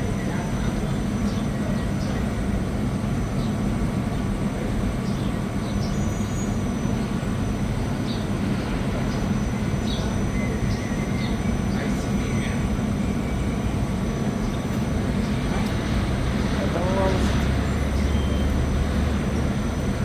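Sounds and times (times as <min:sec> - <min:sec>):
faint high chirps: 0:17.8 - 0:18.8.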